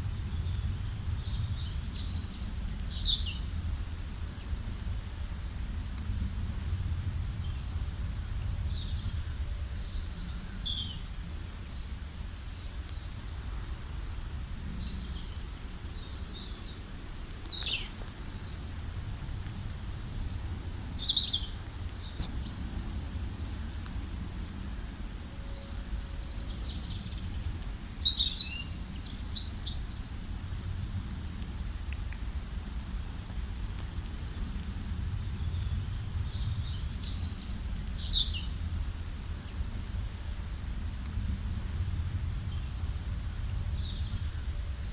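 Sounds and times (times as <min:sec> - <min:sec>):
steady low rumble: 0:00.0 - 0:09.7, 0:14.5 - 0:29.4, 0:30.2 - 0:44.8
songbirds chirping and trilling: 0:07.1 - 0:18.8, 0:19.7 - 0:30.4.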